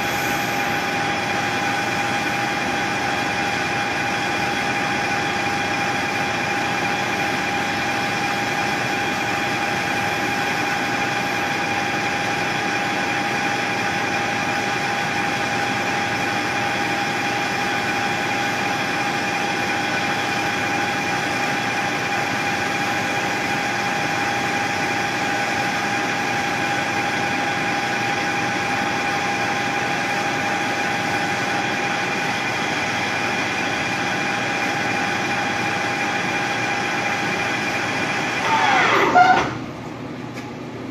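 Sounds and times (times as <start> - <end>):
machine tool whining: 0.0 - 12.3, 38.2 - 39.6.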